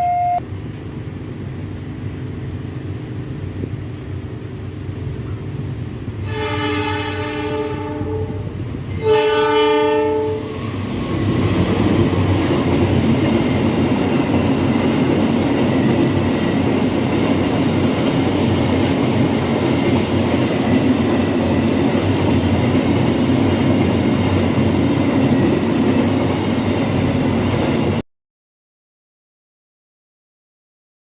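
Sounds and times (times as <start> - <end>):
train wheels running on rails: 10.4 - 28.0.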